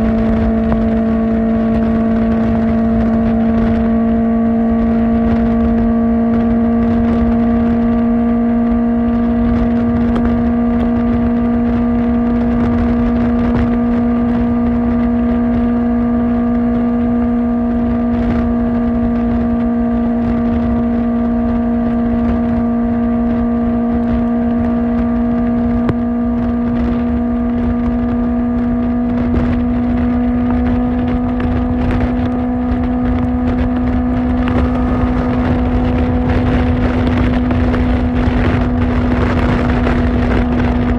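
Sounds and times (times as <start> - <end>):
motorcycle engine cruising: 0.0 - 40.9
low rumble: 30.0 - 40.9.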